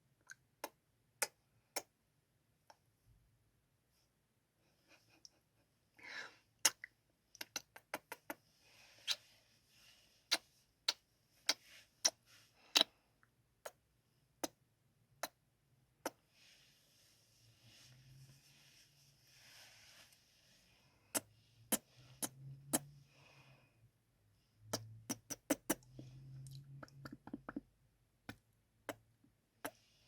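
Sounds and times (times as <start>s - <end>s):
soft breaths: 3.9s - 6.6s, 8.0s - 13.4s, 16.1s - 25.0s
wet lip smacks: 6.6s - 8.4s.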